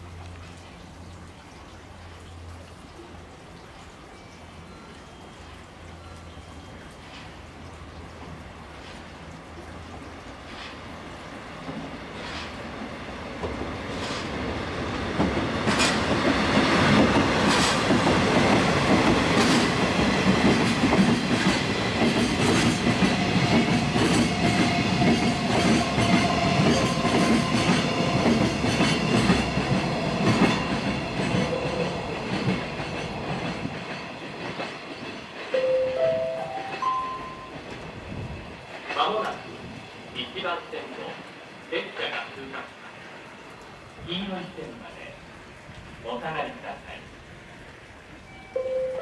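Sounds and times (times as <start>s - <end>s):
diesel locomotive passing: 4.2s - 43.6s
clickety-clack of wheels over rail joints: 10.4s - 10.9s, 11.6s - 35.6s, 37.5s - 41.2s
rising chime from speakers: 35.6s - 37.6s, 48.3s - 49.0s.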